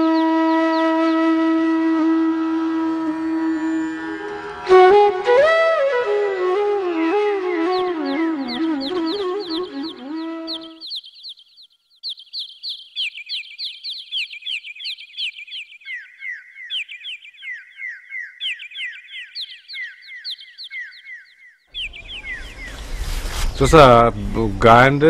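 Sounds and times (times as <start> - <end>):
flute music: 0.0 - 10.8, 21.8 - 23.9
birds chirping: 2.6 - 25.0.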